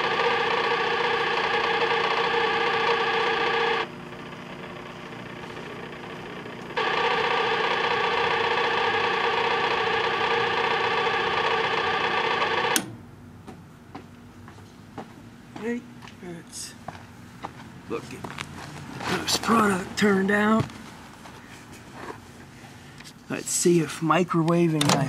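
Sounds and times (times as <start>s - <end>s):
microwave oven humming: 0.0s - 14.4s
microwave oven click: 11.5s - 13.0s.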